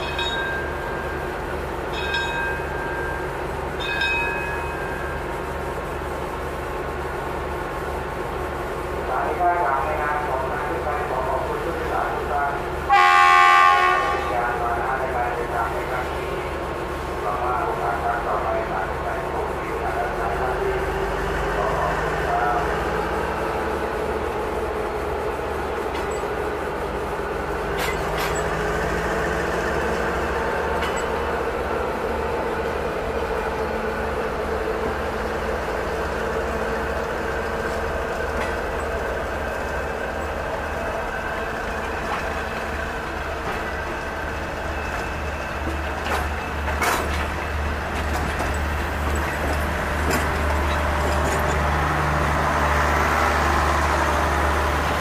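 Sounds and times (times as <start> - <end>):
diesel locomotive running under load: 0.0 - 55.0
train coaches rolling past: 0.0 - 55.0
wheels and couplings clanking: 25.8 - 26.5, 27.5 - 31.8, 37.0 - 53.8.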